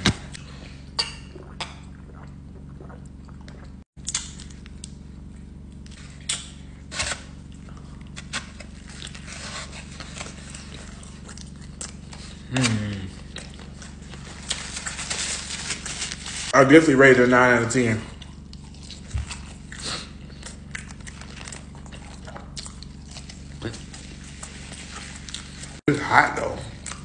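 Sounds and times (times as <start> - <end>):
person chewing with wet smacks: 1.3 - 5.0, 10.0 - 12.4, 13.0 - 14.6, 18.1 - 25.8, 26.8 - 27.0
falling vocal hum: 12.4 - 13.3.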